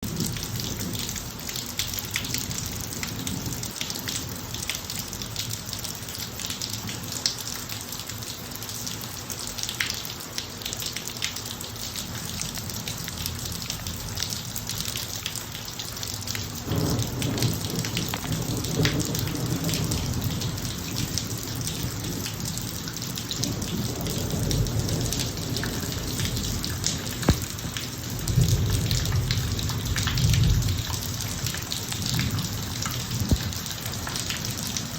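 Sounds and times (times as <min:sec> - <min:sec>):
rain on a driveway: 0:00.0 - 0:34.9
low rumble of thunder: 0:16.5 - 0:34.9.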